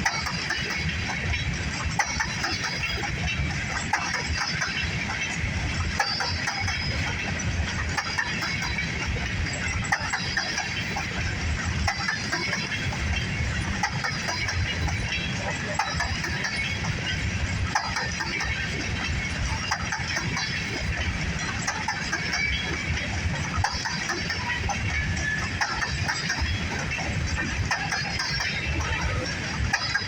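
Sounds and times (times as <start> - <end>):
small clicks and squeaks: 0.0 - 30.0
wheels rumbling on rail: 0.0 - 30.0.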